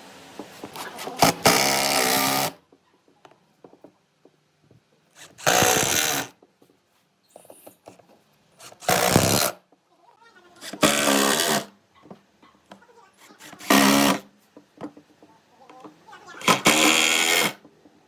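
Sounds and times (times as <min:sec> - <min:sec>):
power tool running: 0:01.1 - 0:02.6, 0:05.2 - 0:06.3, 0:08.6 - 0:09.6, 0:10.6 - 0:11.7, 0:13.4 - 0:14.3, 0:16.4 - 0:17.6.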